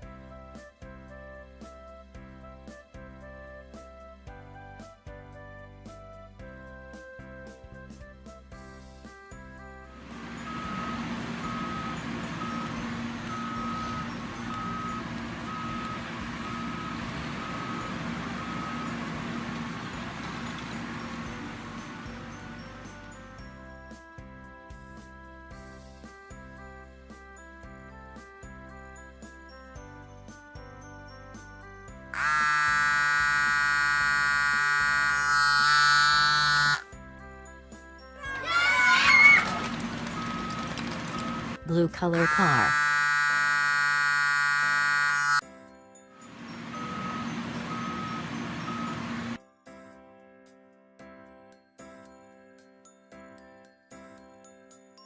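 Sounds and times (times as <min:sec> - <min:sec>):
soft background music: 0:00.0 - 0:42.6, 0:45.4 - 0:55.0
engine drone: 0:10.0 - 0:23.3, 0:32.2 - 0:36.8, 0:39.4 - 0:45.4, 0:46.3 - 0:49.4
reversing alarm beeping: 0:10.2 - 0:21.4, 0:32.2 - 0:36.8, 0:40.2 - 0:45.4, 0:46.5 - 0:49.4
electronic buzzing tone: 0:10.4 - 0:19.0, 0:32.2 - 0:36.8, 0:42.0 - 0:45.4
sliding whistle sound effects: 0:32.2 - 0:36.8, 0:42.2 - 0:45.4.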